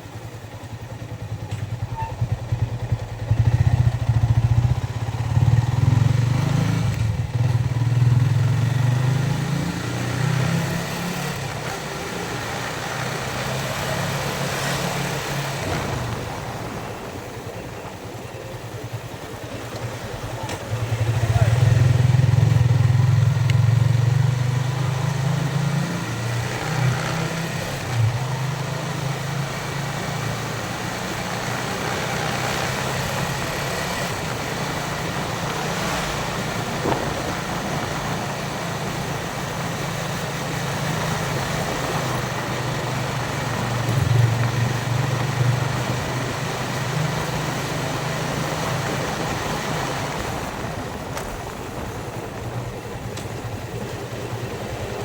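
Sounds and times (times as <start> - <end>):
motorcycle engine running: 0.0 - 55.0
wind noise: 35.2 - 39.6.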